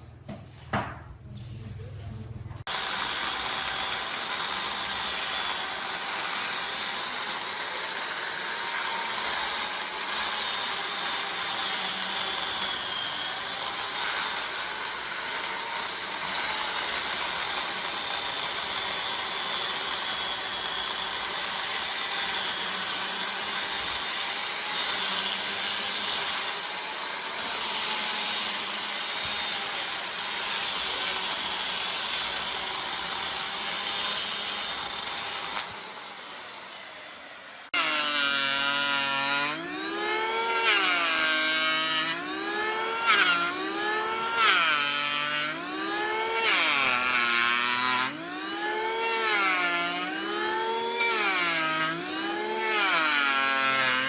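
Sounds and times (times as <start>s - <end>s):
power tool motor running: 2.7s - 54.0s.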